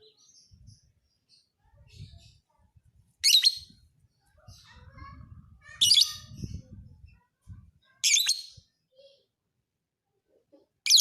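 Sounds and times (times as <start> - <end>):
bird shrill chirping: 3.2 - 3.7.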